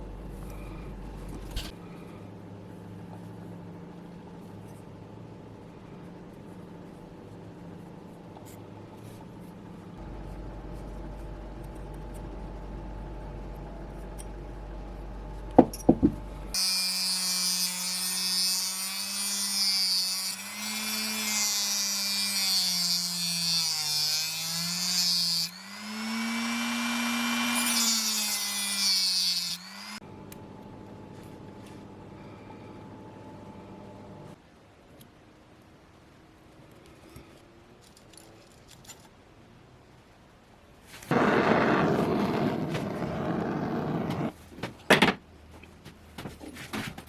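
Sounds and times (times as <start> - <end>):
electric power tool grinding: 16.5 - 30.0.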